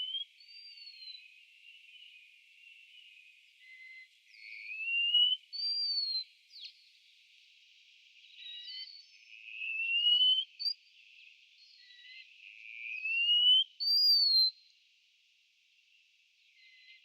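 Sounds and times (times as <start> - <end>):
songbird whistling: 0.0 - 1.3, 3.6 - 6.7, 9.6 - 10.8, 13.0 - 14.6
faint bird chirps: 0.0 - 14.8, 15.8 - 17.0.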